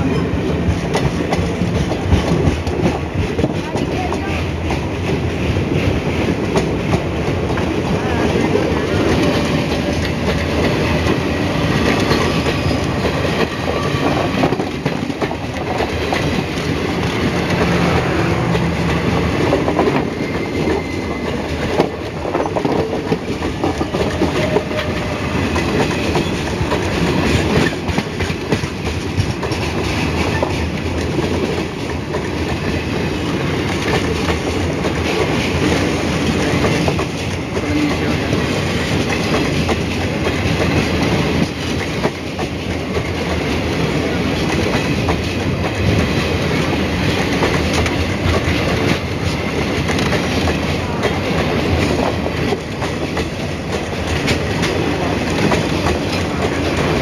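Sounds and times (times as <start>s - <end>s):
rumble of train wheels on rails: 0.0s - 57.0s.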